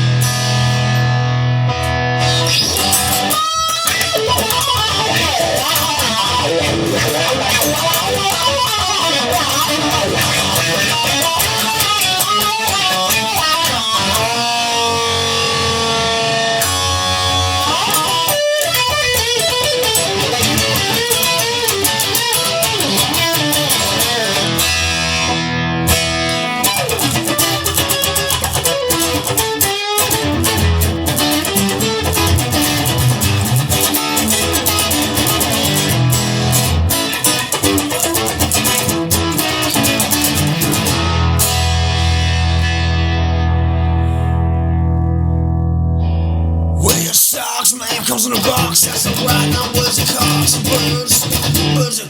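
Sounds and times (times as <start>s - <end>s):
bass line: 0.0s - 3.4s, 38.3s - 47.1s
electric guitar with bent notes: 0.0s - 52.0s.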